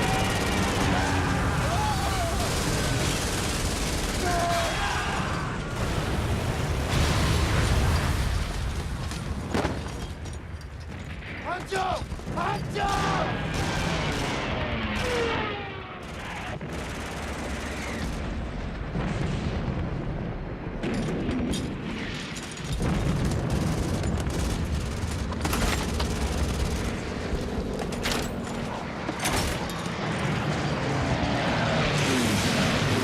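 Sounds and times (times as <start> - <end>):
gunfire barrage: 0.0 - 8.0, 11.3 - 19.8
explosions: 0.0 - 10.0, 10.9 - 27.3.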